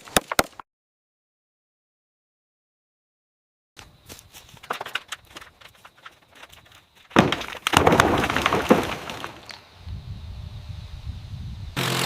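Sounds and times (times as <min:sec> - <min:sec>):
loud rough clatter: 0:04.6 - 0:09.6.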